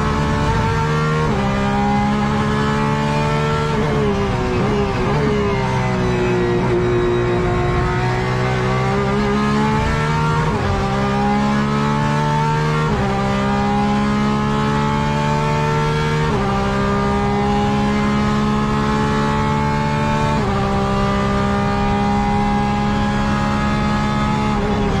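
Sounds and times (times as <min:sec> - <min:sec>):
race car engine accelerating: 0:00.0 - 0:25.0.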